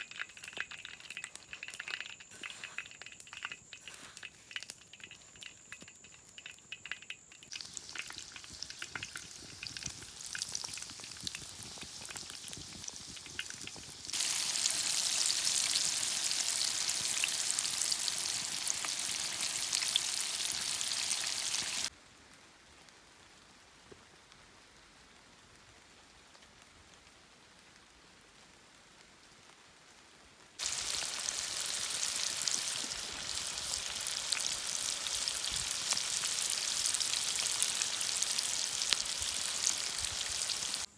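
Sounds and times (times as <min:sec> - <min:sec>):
food sizzling in a pan: 0:00.0 - 0:21.9, 0:30.6 - 0:40.9.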